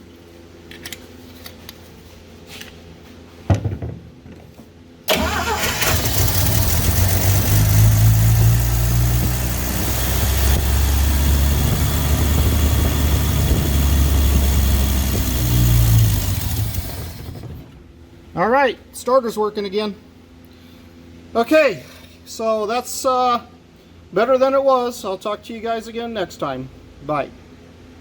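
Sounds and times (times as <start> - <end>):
starter motor engaging: 5.1 - 17.8
engine running: 5.1 - 17.9.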